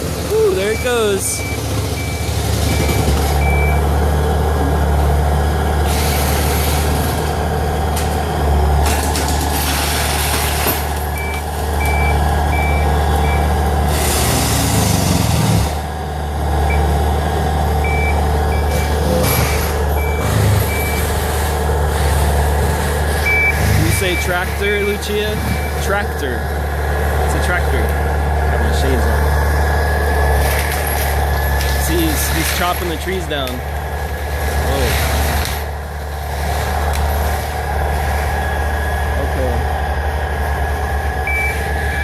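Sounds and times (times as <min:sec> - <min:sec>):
tractor engine under load: 0:00.0 - 0:42.0
reverse alarm beeping: 0:00.4 - 0:03.9, 0:11.2 - 0:13.5, 0:17.8 - 0:19.0, 0:20.0 - 0:21.1, 0:23.2 - 0:24.4, 0:41.2 - 0:42.0.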